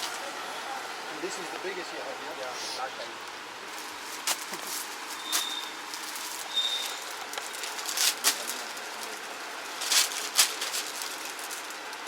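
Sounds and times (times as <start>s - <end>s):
steady hiss: 0.0s - 12.0s
cloth rustling: 3.7s - 12.0s.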